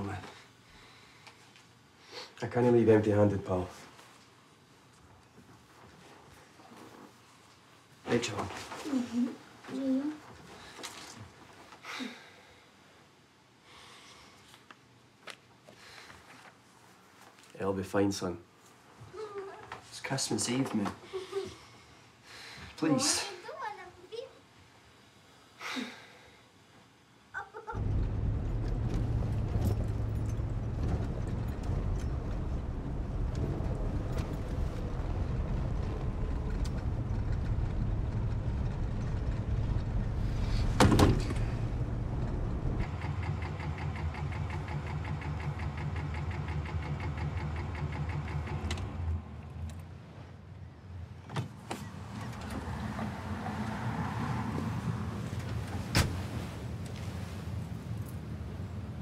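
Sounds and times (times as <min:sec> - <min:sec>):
car engine rumbling: 0:27.8 - 0:51.1.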